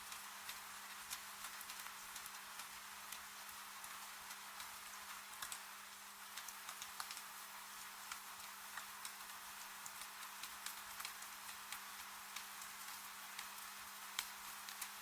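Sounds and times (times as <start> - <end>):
rain hiss: 0.0 - 15.0.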